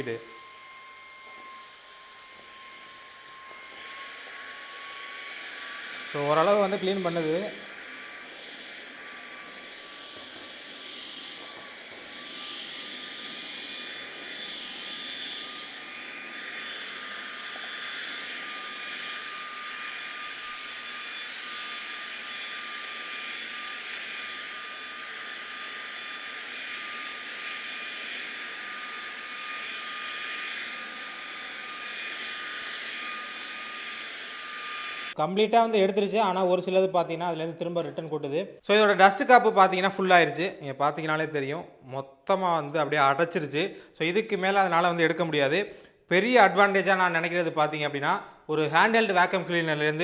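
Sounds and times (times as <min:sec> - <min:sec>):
handheld vacuum motor whining: 0:00.0 - 0:35.2
vacuum sucking up dust: 0:01.6 - 0:07.8.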